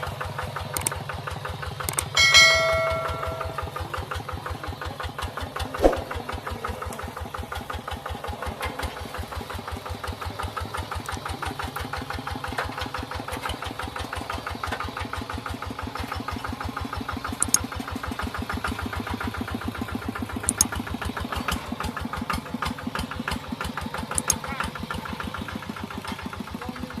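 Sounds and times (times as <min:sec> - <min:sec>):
tractor engine running: 0:00.0 - 0:27.0
brief sharp clicks: 0:05.8 - 0:06.0, 0:24.2 - 0:24.4.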